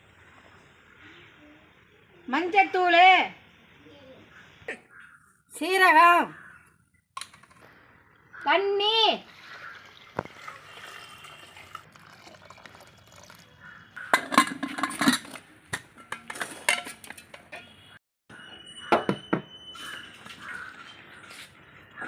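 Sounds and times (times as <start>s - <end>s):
metal pots and utensils clattering: 14.0s - 17.8s.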